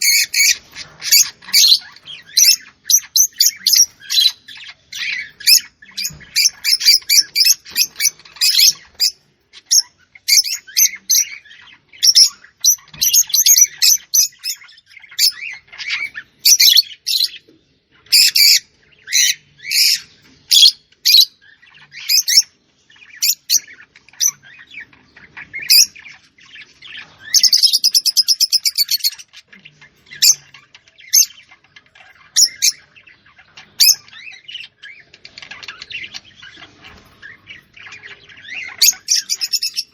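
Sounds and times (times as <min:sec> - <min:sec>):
bird trill: 0:00.0 - 0:39.9
small birds chirping: 0:00.0 - 0:39.9.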